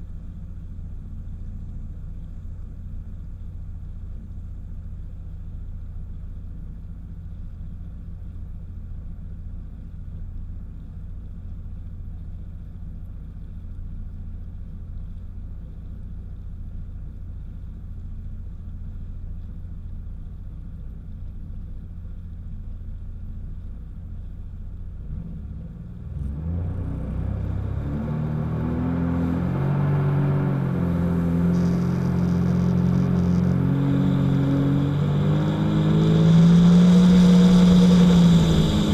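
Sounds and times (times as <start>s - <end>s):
jet ski engine rumbling: 27.7s - 38.9s.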